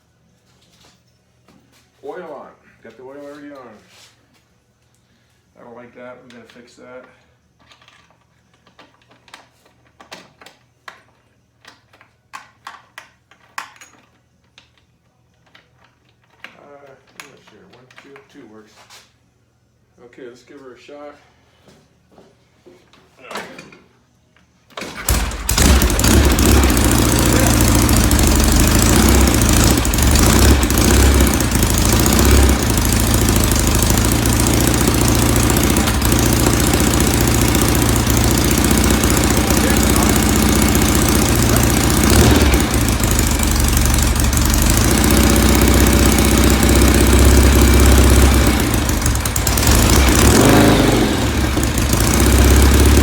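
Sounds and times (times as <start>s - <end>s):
motorcycle engine starting and running: 24.8s - 53.0s.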